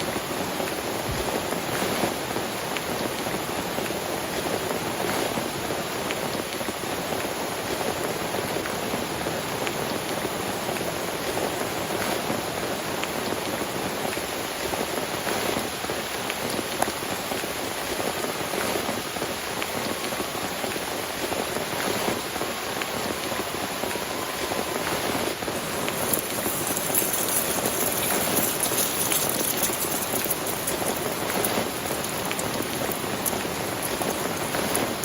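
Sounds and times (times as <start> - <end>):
heavy rain falling: 0.0 - 35.0
raindrops ticking: 9.6 - 35.0.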